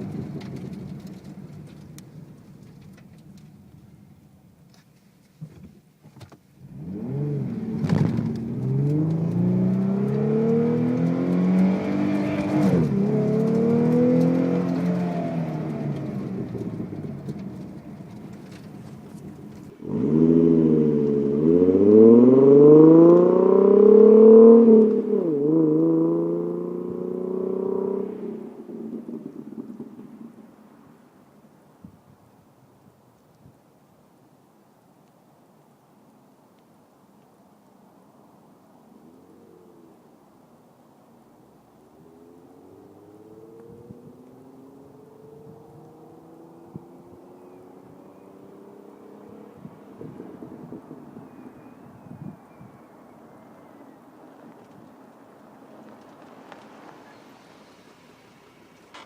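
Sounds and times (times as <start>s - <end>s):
car engine accelerating hard: 0.0s - 4.0s, 6.6s - 31.6s, 41.8s - 59.0s.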